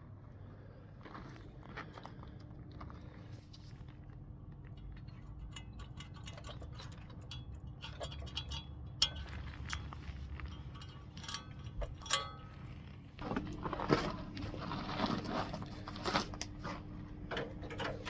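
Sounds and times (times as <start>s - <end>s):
steady low hum: 0.0s - 18.0s
small metal parts clinking: 4.8s - 12.9s.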